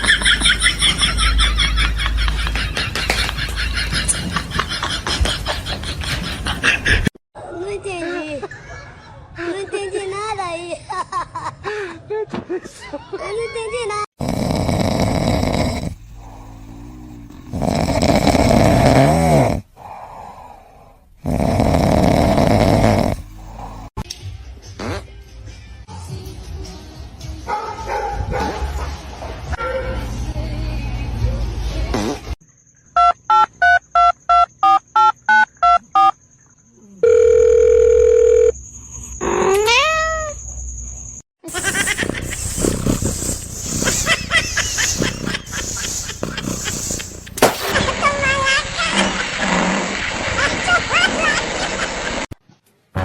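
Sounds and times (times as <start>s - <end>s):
loud snoring: 14.2s - 24.0s, 41.5s - 47.8s, 48.9s - 50.1s
steady phone tone: 37.0s - 38.6s.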